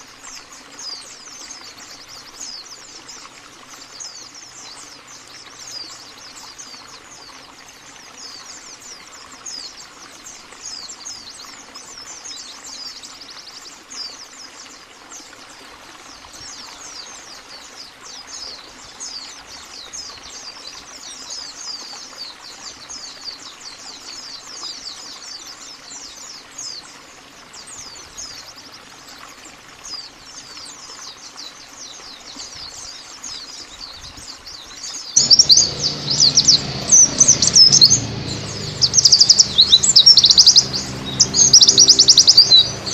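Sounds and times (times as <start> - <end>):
small birds chirping: 33.8 - 42.9.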